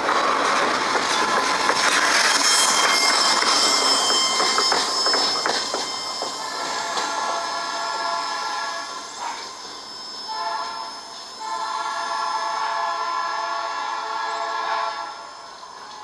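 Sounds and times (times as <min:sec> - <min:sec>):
multi-note air horn blasts: 0:10.3 - 0:15.2.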